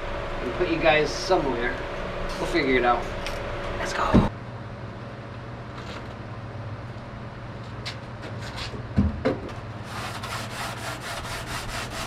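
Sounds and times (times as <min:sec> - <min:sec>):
sandpaper rubbing on fiberglass: 0:09.8 - 0:12.0.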